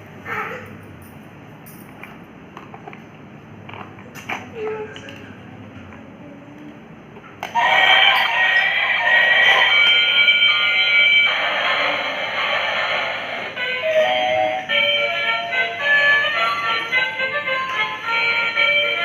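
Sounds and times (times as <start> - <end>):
tinny electronic melody: 7.6 - 12.0.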